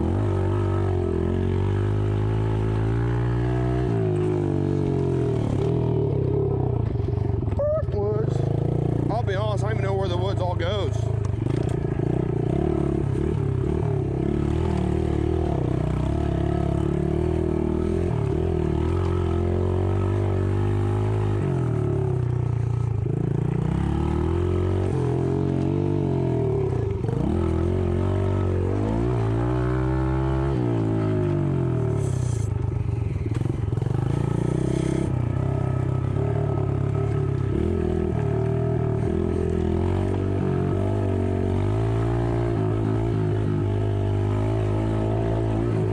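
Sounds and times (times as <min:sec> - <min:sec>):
dirt bike engine revving: 0:00.0 - 0:07.5, 0:08.2 - 0:45.9.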